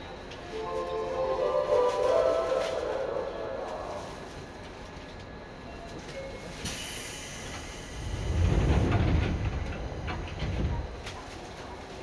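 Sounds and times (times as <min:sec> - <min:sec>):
train wheels rumbling on track: 0:00.0 - 0:12.0
hiss: 0:06.6 - 0:08.8.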